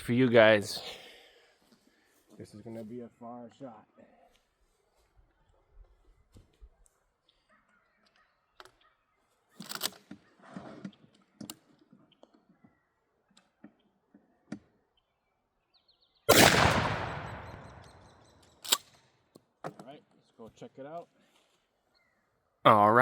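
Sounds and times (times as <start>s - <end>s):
shotgun blast with echo: 16.3s - 18.1s.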